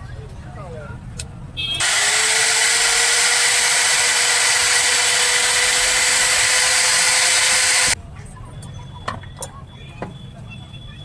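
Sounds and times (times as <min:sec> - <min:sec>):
angle grinder motor whining: 0:01.8 - 0:08.0.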